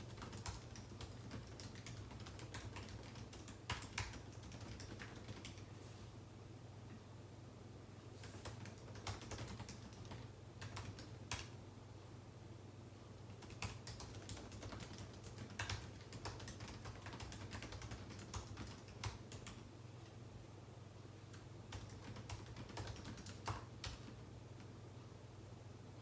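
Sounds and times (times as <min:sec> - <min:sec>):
computer keyboard typing: 0:00.0 - 0:05.7, 0:08.4 - 0:11.6, 0:13.3 - 0:19.6, 0:21.3 - 0:24.2
faint low hum: 0:00.0 - 0:26.0.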